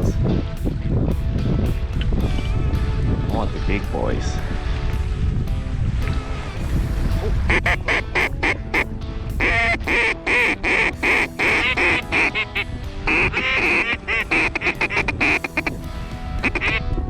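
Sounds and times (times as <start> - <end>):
low wind rumble: 0.0 - 17.0
duck quacking: 7.5 - 15.7, 16.4 - 16.8.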